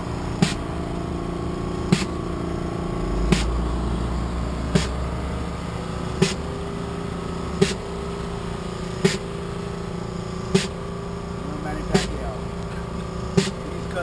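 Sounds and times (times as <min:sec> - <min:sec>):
motorcycle engine idling: 0:00.0 - 0:14.0
sharp click: 0:03.3 - 0:03.6, 0:10.6 - 0:10.8.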